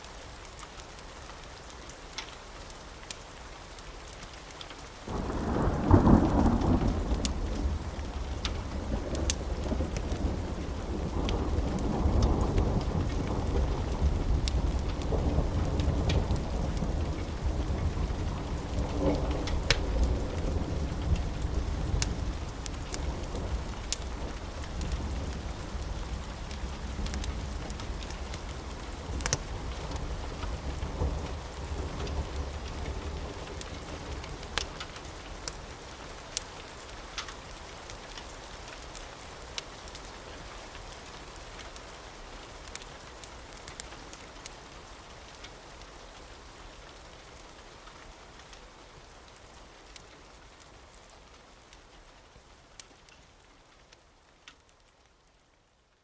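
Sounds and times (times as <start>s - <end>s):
steady rain: 0.0s - 56.0s
sharp crackles: 4.1s - 45.9s
low rumble of thunder: 5.1s - 35.6s.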